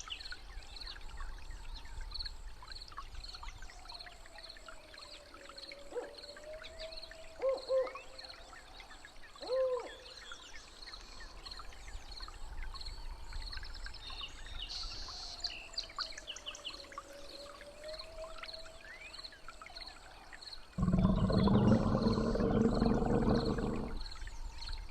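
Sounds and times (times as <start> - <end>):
birds calling: 20.8 - 24.0.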